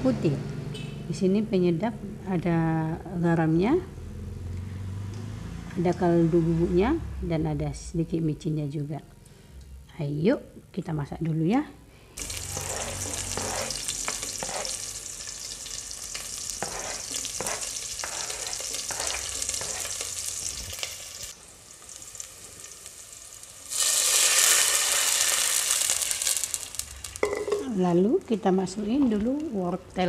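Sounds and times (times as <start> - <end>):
vegetables sizzling in a pot: 12.2 - 28.3
scraping on cutting board: 12.4 - 14.8, 16.6 - 20.0
metal ladle tapping: 27.2 - 27.7.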